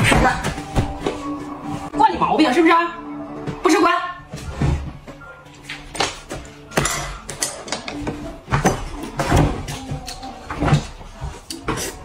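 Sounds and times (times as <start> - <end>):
objects knocking and clattering: 5.9 - 12.0.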